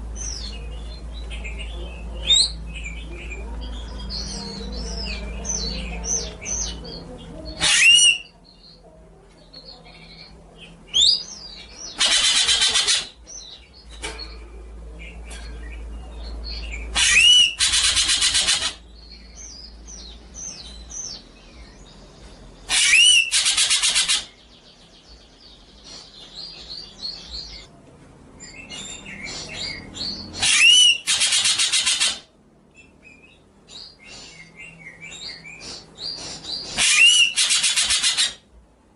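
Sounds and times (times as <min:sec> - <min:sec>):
songbird chirps and whistles: 0:16.6 - 0:18.4, 0:19.0 - 0:24.9, 0:32.8 - 0:38.3.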